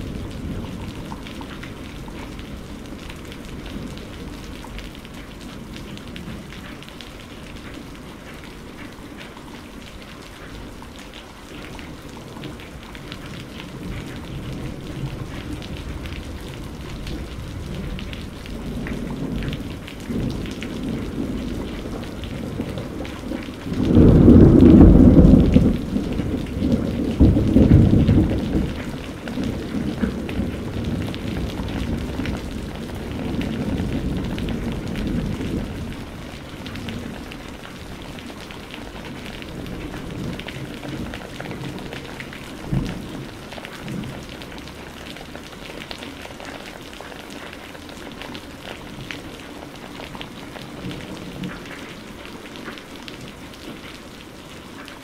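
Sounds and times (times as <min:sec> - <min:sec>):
rain pattering: 0:00.0 - 0:55.0
low thunder rumble: 0:13.7 - 0:44.7.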